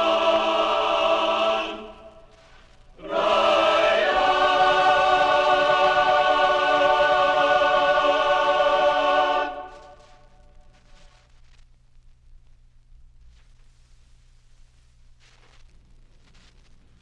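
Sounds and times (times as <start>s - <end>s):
choir singing held chords: 0.0s - 10.4s.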